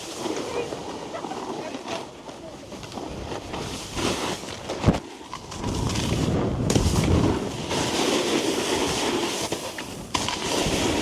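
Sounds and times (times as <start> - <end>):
snowboard scraping over snow: 0.0 - 11.0
wind on microphone: 2.7 - 9.2.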